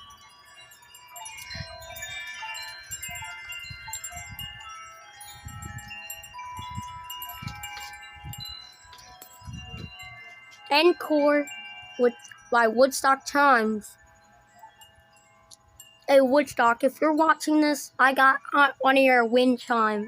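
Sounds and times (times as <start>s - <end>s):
wind rumbling on microphone: 0.0s - 12.3s
metal wind chimes ringing: 0.0s - 20.0s.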